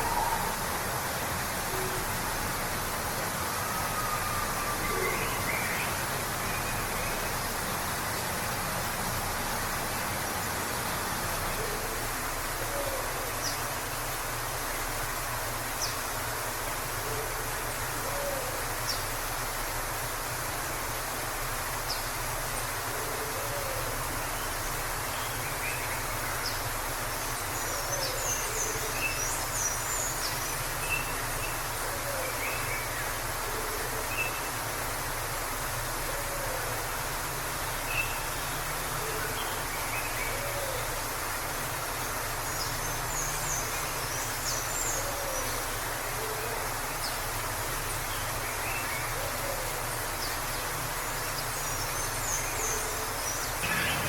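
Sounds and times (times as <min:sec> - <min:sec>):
waterfall rushing: 0:00.0 - 0:54.0
birds calling: 0:51.3 - 0:54.0.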